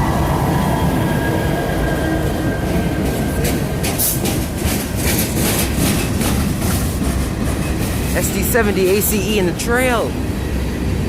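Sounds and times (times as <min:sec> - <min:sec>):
diesel locomotive rumble: 0:00.0 - 0:11.0
wheels clacking on rails: 0:02.2 - 0:11.0.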